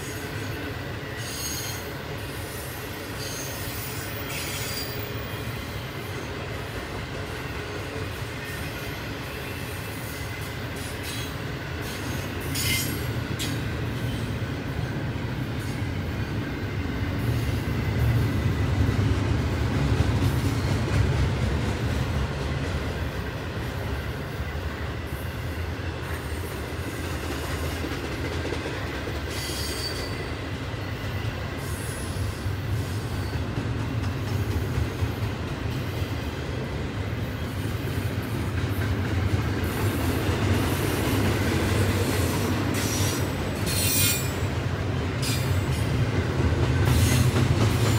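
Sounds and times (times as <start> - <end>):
train clanks: 0.0 - 47.9
train wheels rumbling on track: 0.0 - 47.9
high wheel squeals: 3.2 - 5.6, 42.7 - 44.5.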